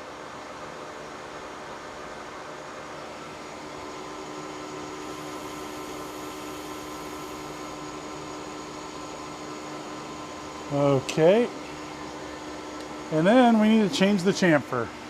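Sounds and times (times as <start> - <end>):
metal lathe humming: 3.4 - 15.0.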